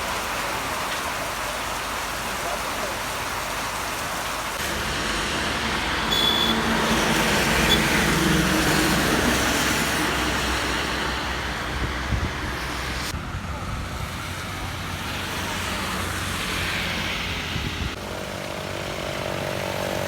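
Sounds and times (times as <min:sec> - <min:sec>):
heavy rain: 0:00.0 - 0:20.0
vehicle driving past on wet road: 0:04.5 - 0:20.0.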